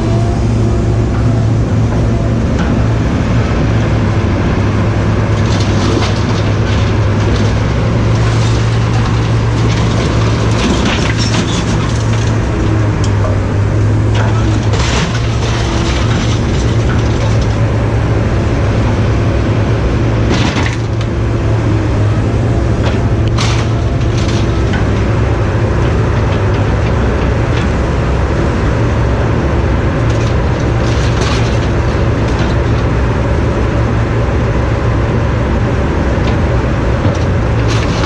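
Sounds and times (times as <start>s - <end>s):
heavy engine running: 0.0s - 38.0s
metal clanks and crunches: 4.6s - 18.0s, 20.2s - 21.2s, 22.7s - 28.1s, 29.8s - 33.1s, 36.1s - 38.0s.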